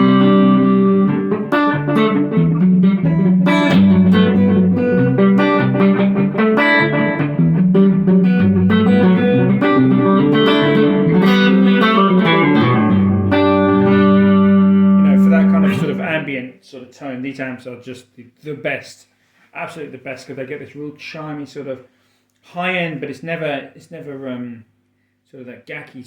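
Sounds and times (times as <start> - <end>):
clean electric guitar playing: 0.0 - 16.5.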